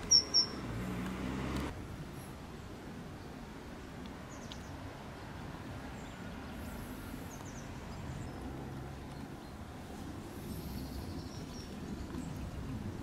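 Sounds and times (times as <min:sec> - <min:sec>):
high bird chirps: 0:00.0 - 0:00.6.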